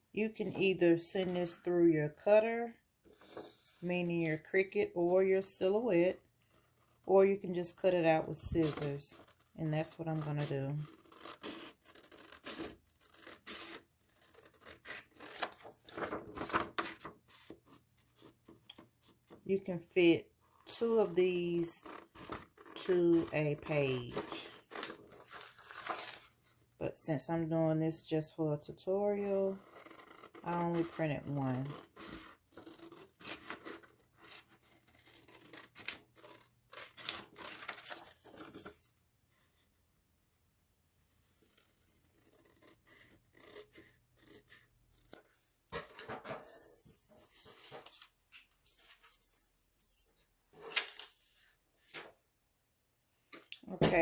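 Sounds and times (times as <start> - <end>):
scissors snipping paper: 6.9 - 17.6, 20.7 - 26.3, 29.2 - 38.7, 41.4 - 45.3.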